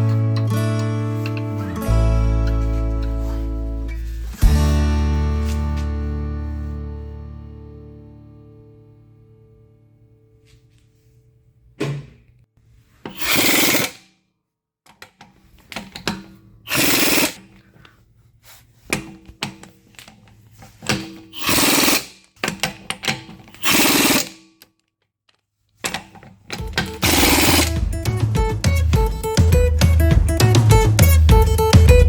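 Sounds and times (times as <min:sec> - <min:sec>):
clicks and knocks of tools: 0:00.0 - 0:01.7, 0:14.9 - 0:18.0, 0:18.9 - 0:27.8
power tool bursts: 0:13.1 - 0:14.1, 0:16.7 - 0:17.5, 0:21.3 - 0:22.2, 0:23.6 - 0:24.4, 0:26.6 - 0:28.2.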